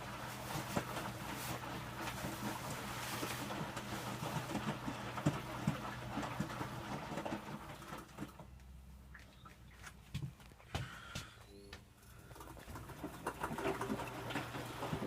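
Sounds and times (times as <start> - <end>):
water sloshing in drum: 0.0 - 8.5, 12.3 - 15.0
washing machine motor hum: 0.0 - 15.0.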